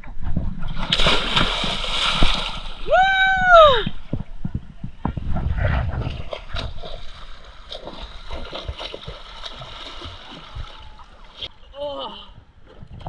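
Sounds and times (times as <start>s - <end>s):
water splashing and gurgling: 0.4s - 4.2s, 5.3s - 11.6s.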